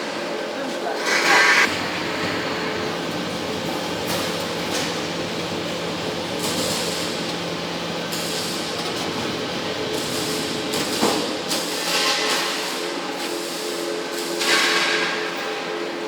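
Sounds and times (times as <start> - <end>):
machine hiss over low hum: 1.0 - 12.1.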